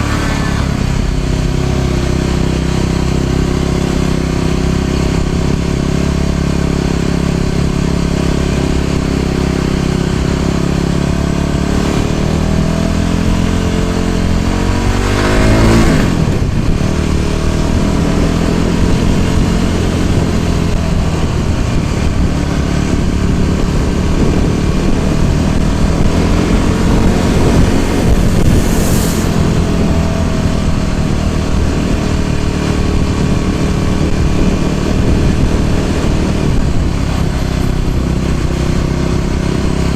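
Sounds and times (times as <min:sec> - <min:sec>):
brief whoosh: 0:00.0 - 0:01.2, 0:26.2 - 0:30.5
scooter engine running: 0:00.0 - 0:39.9
short hiss: 0:28.4 - 0:29.6.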